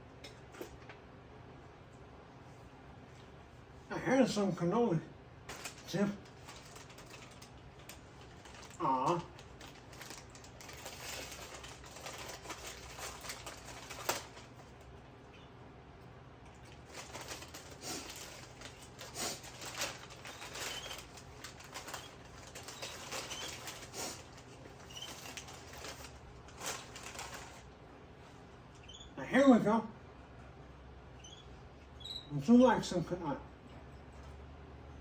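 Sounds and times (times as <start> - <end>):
clicks and rustles: 5.5 - 14.9, 16.5 - 27.7
canaries fluttering and hopping: 19.6 - 23.9, 24.8 - 26.2.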